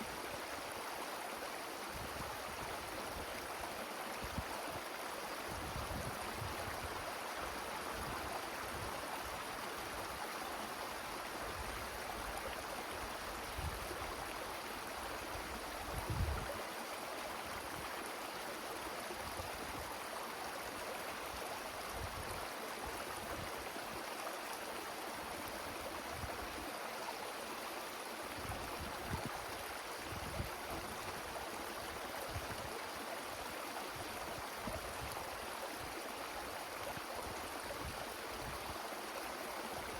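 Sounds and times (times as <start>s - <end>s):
wind through trees: 0.0s - 39.9s
wind buffeting microphone: 15.9s - 16.5s.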